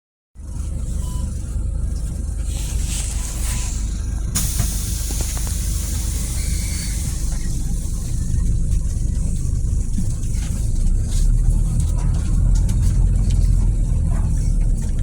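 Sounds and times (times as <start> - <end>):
bus engine idling: 0.4 - 15.0
compressed air hiss: 2.8 - 7.6.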